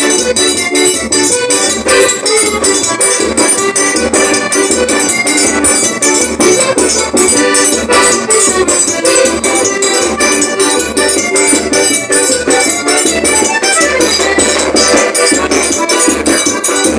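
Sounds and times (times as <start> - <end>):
accordion melody: 0.0 - 16.9
zabumba drum beat: 0.0 - 16.9.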